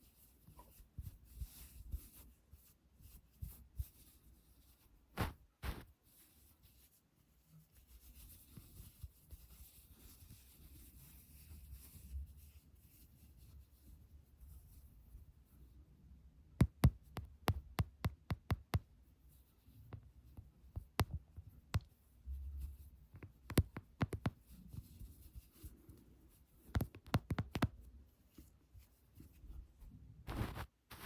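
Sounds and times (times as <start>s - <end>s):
finger tapping: 16.6s - 18.9s, 23.2s - 24.4s, 26.7s - 27.8s
scratching rub: 22.5s - 31.0s.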